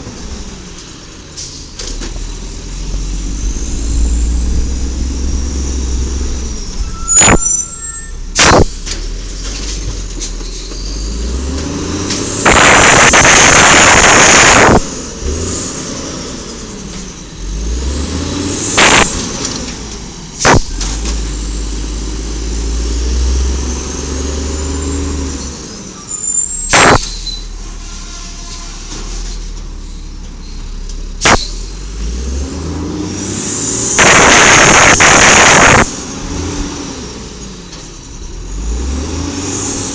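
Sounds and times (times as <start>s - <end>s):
garbage truck engine revving: 0.0s - 27.6s, 31.2s - 39.9s
sharp bangs: 2.1s - 9.0s, 12.1s - 14.9s, 18.6s - 19.4s, 20.4s - 21.2s, 26.6s - 27.3s, 33.8s - 36.0s.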